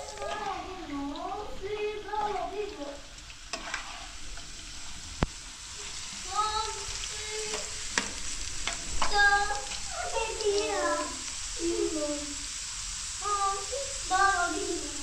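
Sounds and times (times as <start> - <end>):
potato sticks sizzling in oil: 0.0 - 15.0
high voice sounds: 13.2 - 15.0.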